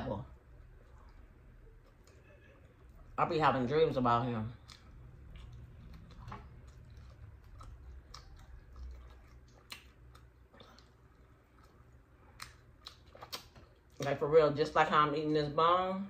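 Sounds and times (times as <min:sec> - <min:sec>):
low steady hum: 0:00.0 - 0:16.0
chewing on a rib bone: 0:04.5 - 0:14.1.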